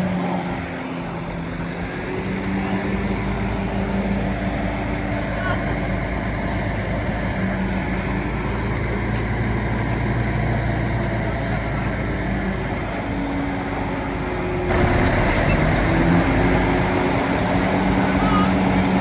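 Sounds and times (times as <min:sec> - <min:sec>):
bulldozer diesel engine running: 0:05.8 - 0:19.0.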